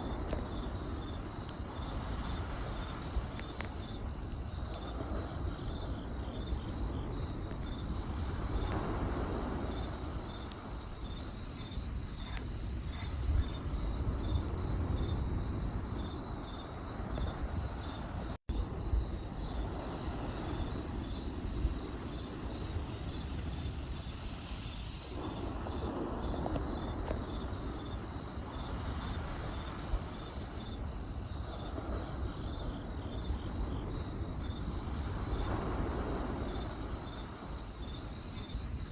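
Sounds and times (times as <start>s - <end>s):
campfire crackles: 0.0s - 18.0s, 18.6s - 38.9s
crickets chirping: 0.0s - 38.9s.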